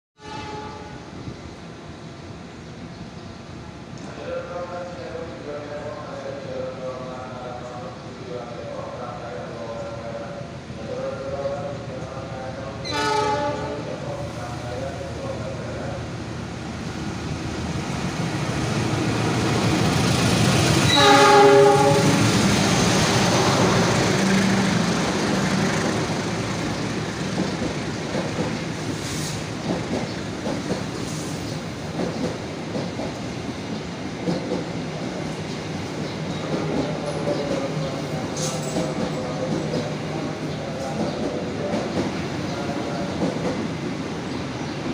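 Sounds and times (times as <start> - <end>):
train horn blast: 0.2 - 1.0, 12.8 - 13.9, 20.9 - 22.2
locomotive passing: 14.2 - 44.9.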